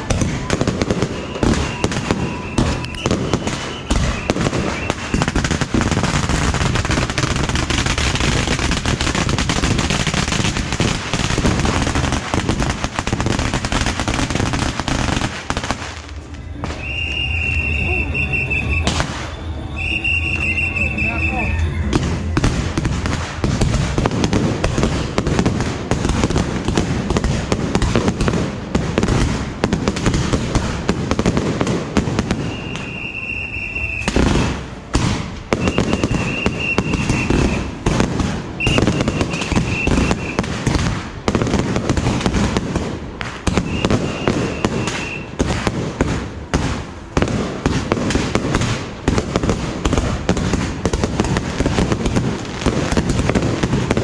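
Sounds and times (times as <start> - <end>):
firecrackers crackling: 0.0 - 54.0
high steady whistle: 1.0 - 5.4, 16.2 - 22.4, 32.4 - 34.2, 35.6 - 37.8, 38.6 - 40.4, 43.6 - 45.3.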